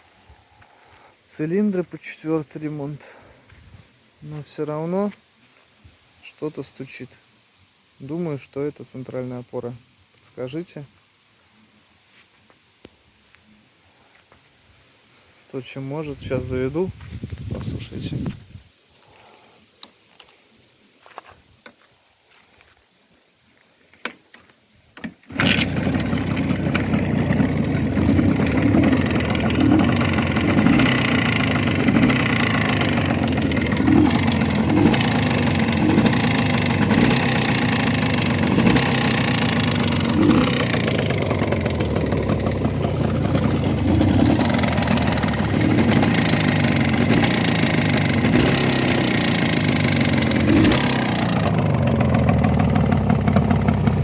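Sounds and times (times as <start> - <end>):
engine knock: 25.3 - 54.0
motorcycle engine running: 25.3 - 54.0.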